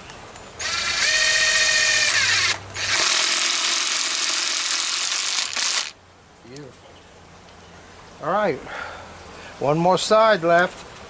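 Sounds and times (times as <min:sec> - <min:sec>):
power drill drilling into wood: 0:00.6 - 0:05.9.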